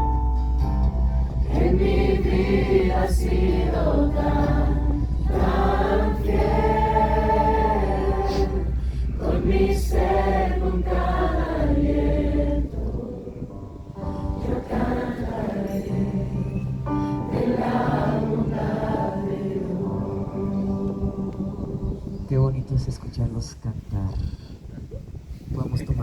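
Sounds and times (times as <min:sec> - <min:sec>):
low accompaniment: 0:00.0 - 0:23.7
group singing worship song: 0:01.4 - 0:22.6.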